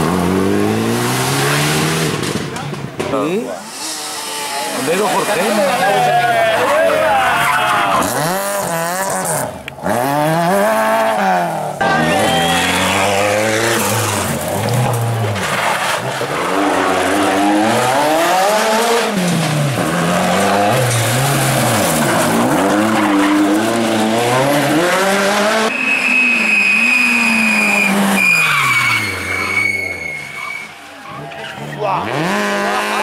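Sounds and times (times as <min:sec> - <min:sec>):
rally car engine revving: 0:00.0 - 0:33.0
tyre and road noise: 0:00.0 - 0:33.0
high steady squeal: 0:25.7 - 0:30.8.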